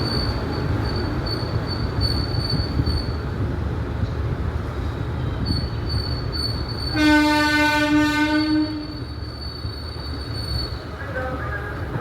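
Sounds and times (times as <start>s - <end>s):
train rumble with wheel whine: 0.0s - 12.0s
locomotive horn blast: 6.9s - 8.9s.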